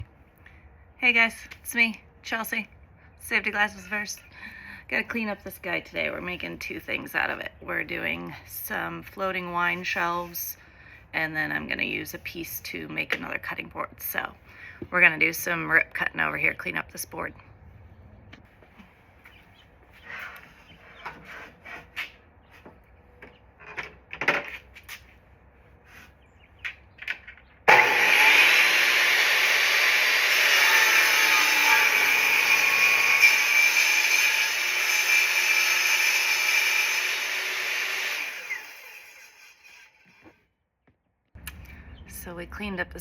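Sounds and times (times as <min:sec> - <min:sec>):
table saw cutting wood: 0:27.7 - 0:40.4.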